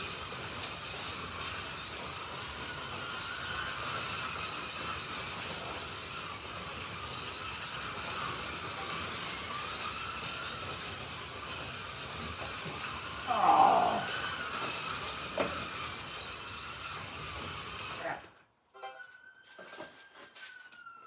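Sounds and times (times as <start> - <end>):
slot car motors whining: 0.0 - 18.5
steady rolling hiss: 7.1 - 15.5.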